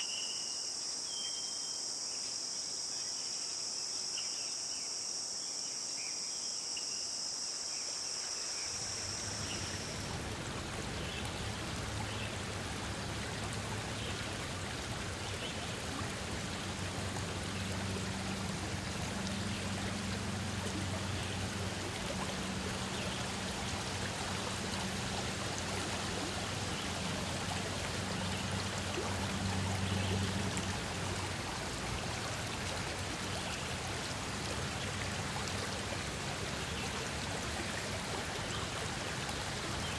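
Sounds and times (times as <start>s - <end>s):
crickets chirring: 0.0s - 39.9s
stream water rushing: 8.0s - 39.9s
faint low hum: 8.6s - 39.7s.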